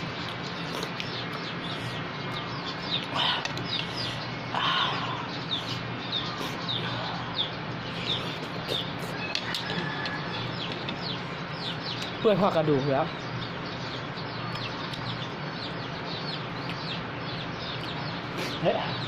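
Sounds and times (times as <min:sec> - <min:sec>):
birds chirping: 0:00.0 - 0:19.0
harsh bird calls: 0:00.0 - 0:19.0
steady low hum: 0:00.0 - 0:19.0.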